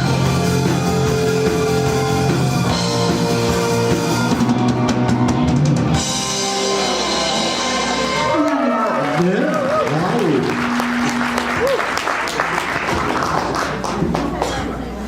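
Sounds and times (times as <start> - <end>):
live rock band playing: 0.0 - 9.0, 10.4 - 12.0.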